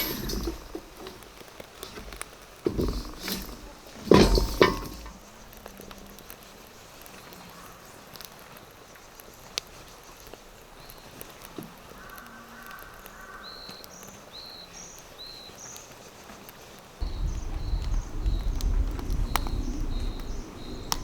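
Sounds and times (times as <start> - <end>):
faint scattered ticks: 4.8 - 21.0
bird chirping: 17.0 - 21.0.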